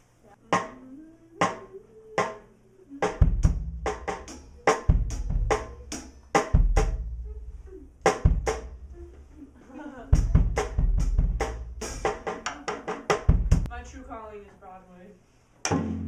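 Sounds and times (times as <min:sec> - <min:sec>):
snare and cymbal strikes: 0:15.6 - 0:16.0.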